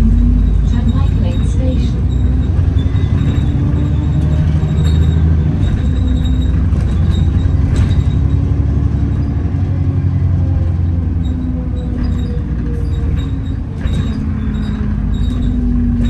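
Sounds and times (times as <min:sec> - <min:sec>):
bus engine drone: 0:00.0 - 0:16.0
drivetrain whine: 0:00.0 - 0:16.0
loud axle noise: 0:00.0 - 0:16.0.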